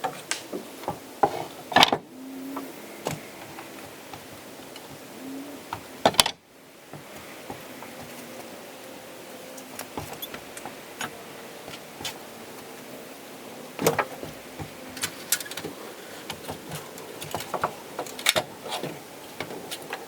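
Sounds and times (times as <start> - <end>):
steady background hiss: 0.0 - 20.0
knocks and clicks of tools: 5.7 - 8.2, 13.8 - 20.0.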